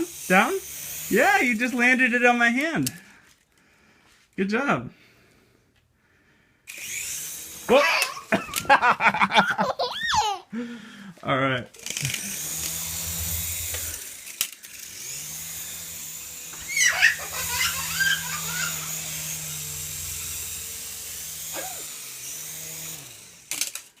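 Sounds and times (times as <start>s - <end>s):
toy helicopter motor whining: 0.0s - 2.3s, 6.6s - 8.8s, 11.7s - 24.0s
small child squealing: 16.5s - 19.4s.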